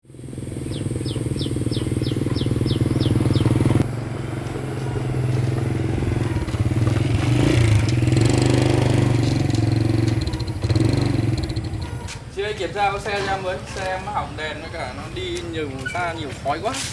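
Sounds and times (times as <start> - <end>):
motorbike engine revving: 0.0 - 12.1.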